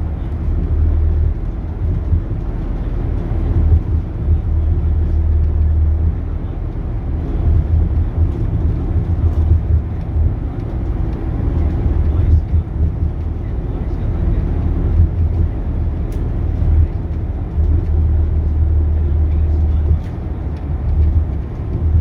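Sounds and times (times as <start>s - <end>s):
bus diesel engine rumbling: 0.0s - 22.0s.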